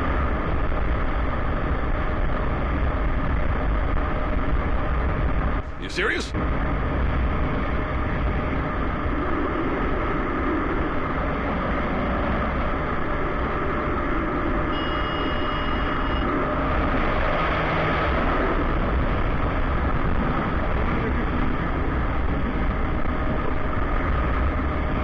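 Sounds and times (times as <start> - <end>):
road noise: 0.0 - 25.0
high steady beep: 14.7 - 16.3.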